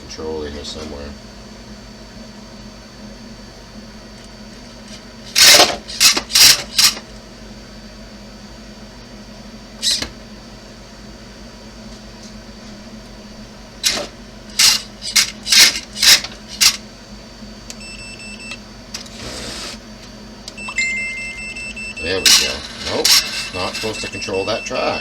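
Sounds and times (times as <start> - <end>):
short electronic beeps: 20.6 - 25.0.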